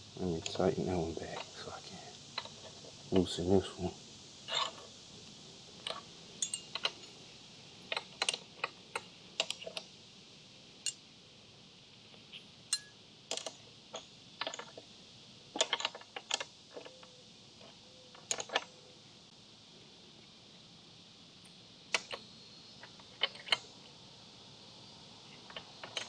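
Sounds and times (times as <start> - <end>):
wrench clicking against nut: 7.9 - 9.9.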